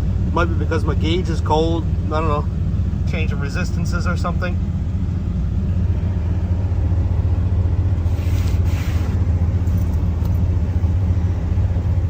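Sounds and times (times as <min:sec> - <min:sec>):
choppy engine rumble: 0:00.0 - 0:12.0
brief hiss: 0:08.0 - 0:09.2.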